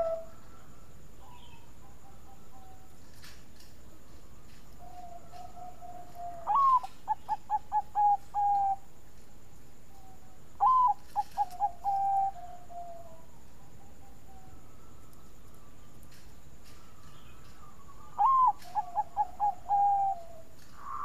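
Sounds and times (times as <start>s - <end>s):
dove cooing: 0.0s - 0.4s, 4.8s - 8.9s, 10.0s - 15.1s, 16.7s - 21.0s
faint dove coos: 0.0s - 3.0s, 4.4s - 9.0s, 9.9s - 15.8s, 16.7s - 21.0s.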